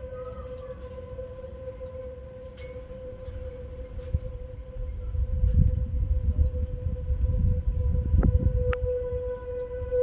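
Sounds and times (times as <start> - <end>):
warning siren steady tone: 0.0 - 10.0.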